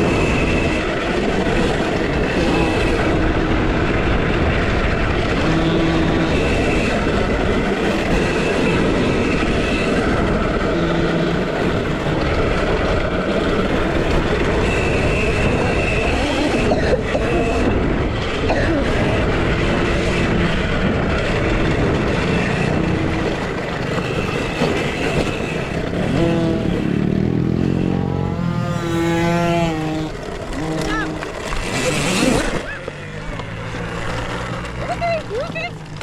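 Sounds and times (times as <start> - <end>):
electric motor whine: 19.1 - 34.8.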